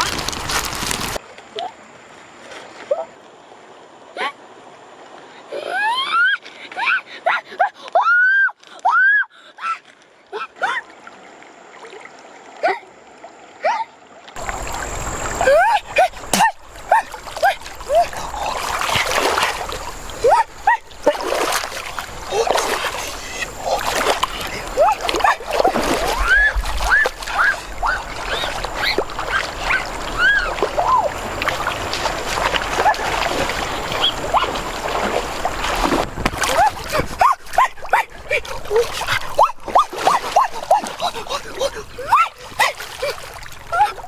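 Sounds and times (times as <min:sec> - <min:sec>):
splashing: 0:00.0 - 0:01.2, 0:14.4 - 0:44.0
steady watery hiss: 0:14.4 - 0:37.2.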